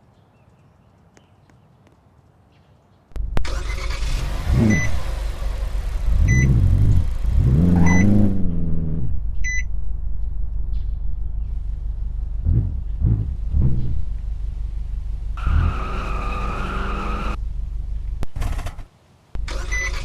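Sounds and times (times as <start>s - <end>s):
car engine revving: 3.2s - 9.5s, 11.2s - 18.4s.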